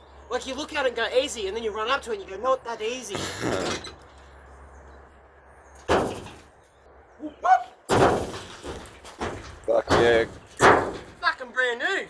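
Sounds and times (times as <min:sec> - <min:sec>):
faint background noise: 0:00.0 - 0:12.0
sudden bang: 0:05.9 - 0:06.5, 0:07.9 - 0:11.2.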